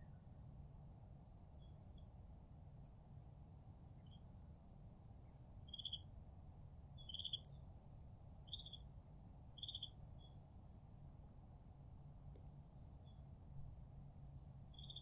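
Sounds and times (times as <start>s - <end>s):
faint low rumble: 0.0s - 15.0s
songbirds calling: 2.8s - 6.1s, 7.0s - 7.6s, 8.5s - 8.9s, 9.6s - 10.4s, 14.7s - 15.0s.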